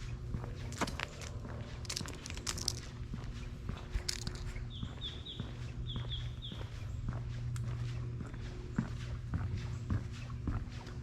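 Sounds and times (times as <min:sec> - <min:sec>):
footsteps walking: 0:00.0 - 0:11.0
low steady hum: 0:00.0 - 0:11.0
bird chirping: 0:04.5 - 0:07.1.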